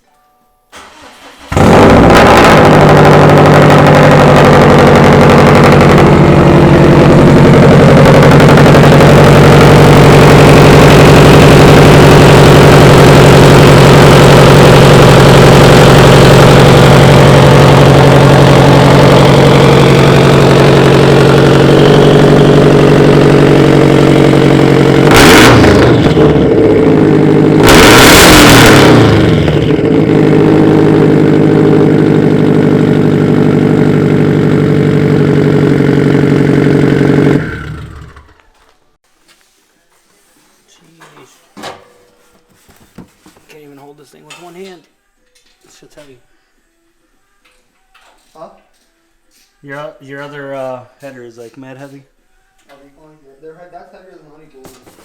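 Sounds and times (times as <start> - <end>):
car engine starting and idling: 0.7 - 38.5
car engine revving: 0.8 - 38.4.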